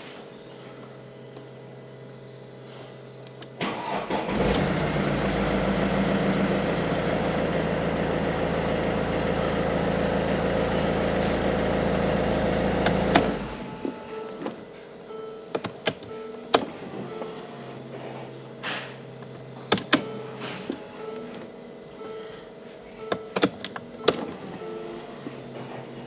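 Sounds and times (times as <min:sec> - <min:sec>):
car engine cranking and idling: 0:03.5 - 0:14.2.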